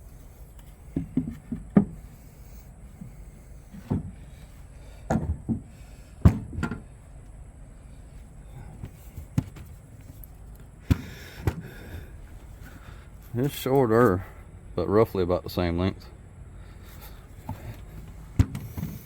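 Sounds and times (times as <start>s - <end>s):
wooden boards knocking: 1.0s - 2.0s.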